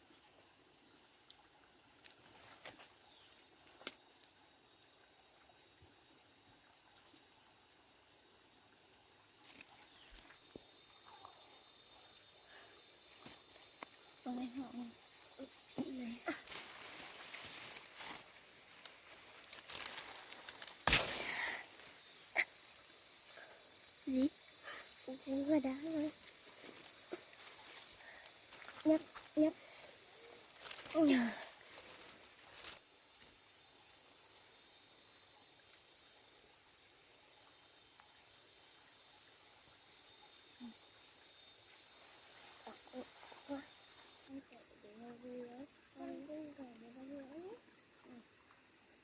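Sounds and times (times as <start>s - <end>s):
high-pitched insect trill: 0.1s - 48.7s
rustling and handling noises: 16.2s - 21.4s.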